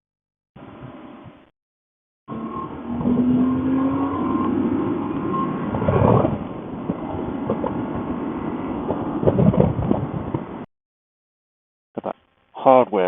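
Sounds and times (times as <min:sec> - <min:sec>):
motorcycle engine: 0:02.3 - 0:06.4
wind noise: 0:02.9 - 0:10.7.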